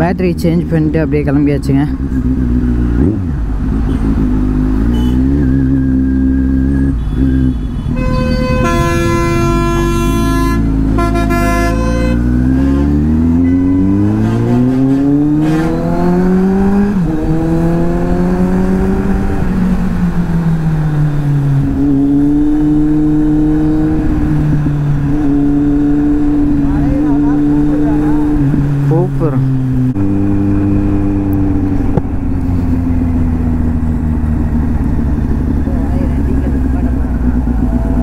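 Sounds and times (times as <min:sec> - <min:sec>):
motorcycle engine accelerating: 0:00.0 - 0:38.0
vehicle horn blasts: 0:04.8 - 0:05.4, 0:06.8 - 0:12.5, 0:13.4 - 0:14.6
low wind rumble: 0:07.8 - 0:38.0.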